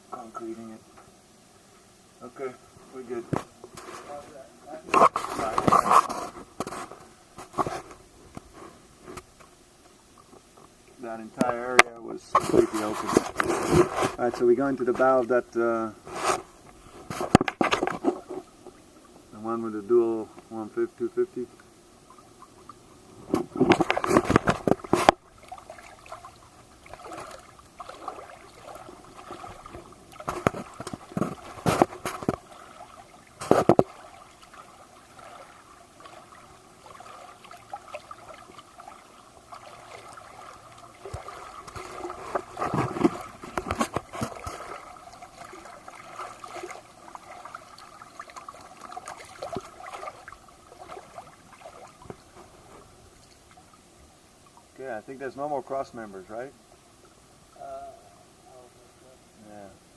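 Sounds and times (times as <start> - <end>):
faint background noise: 0.0 - 59.9
water splashing and gurgling: 16.0 - 54.8.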